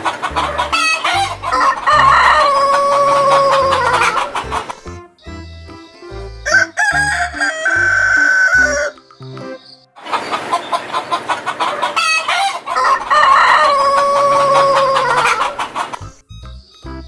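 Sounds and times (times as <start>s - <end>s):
chickens clucking: 0.0s - 5.0s, 6.1s - 16.2s
rooster crowing: 0.4s - 4.8s, 6.4s - 9.0s, 11.7s - 16.0s.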